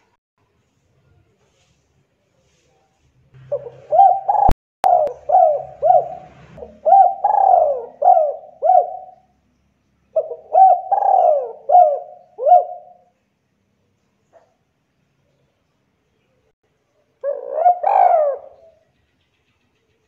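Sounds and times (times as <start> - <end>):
dove cooing: 3.4 - 9.3, 10.2 - 13.1, 17.2 - 18.8.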